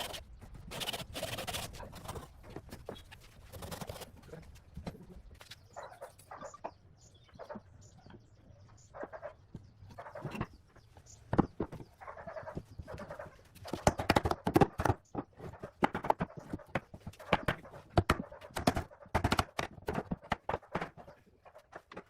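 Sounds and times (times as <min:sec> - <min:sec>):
chickens clucking: 0:05.8 - 0:14.0.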